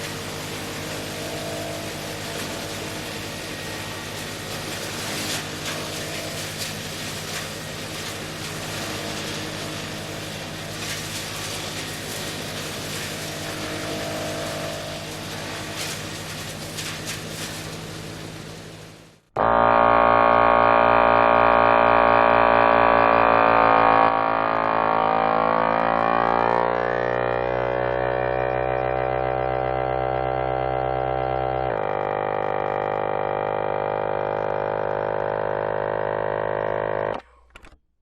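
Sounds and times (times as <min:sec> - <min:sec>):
machine droning: 0:00.0 - 0:37.6.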